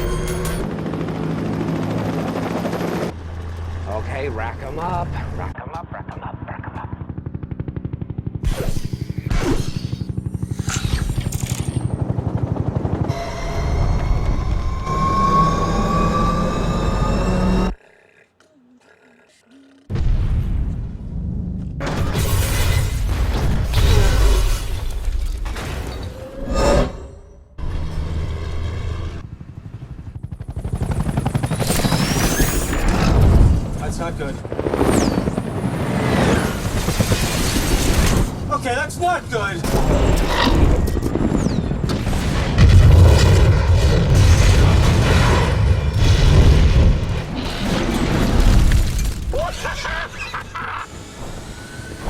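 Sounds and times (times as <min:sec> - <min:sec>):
helicopter rotor chopping: 0:00.0 - 0:17.8, 0:27.8 - 0:48.2, 0:49.4 - 0:52.0
rising whine: 0:13.0 - 0:17.8
low drone: 0:13.1 - 0:17.8.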